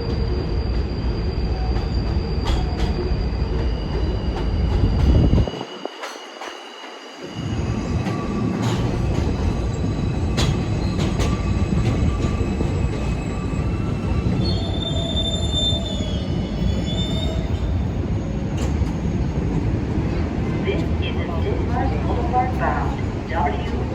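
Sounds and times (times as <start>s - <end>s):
train wheels rumbling on rail: 0.0s - 23.9s
high wheel squeal: 9.8s - 18.0s.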